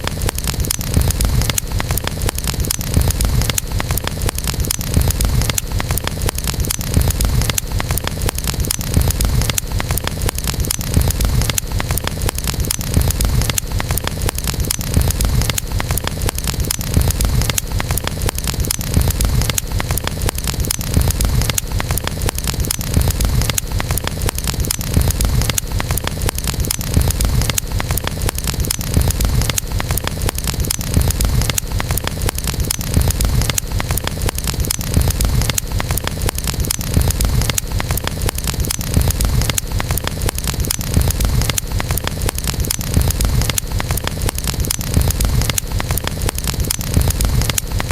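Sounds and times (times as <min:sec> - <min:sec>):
low rumble of flames: 0:00.0 - 0:47.9
wood crackling and popping: 0:00.0 - 0:47.9.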